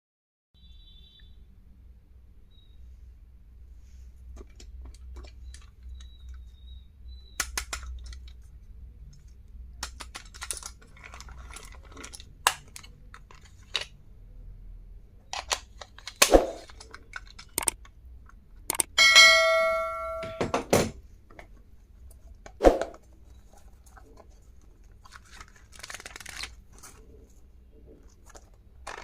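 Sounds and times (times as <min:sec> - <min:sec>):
stationery being handled: 0:07.4 - 0:14.0, 0:15.3 - 0:29.0.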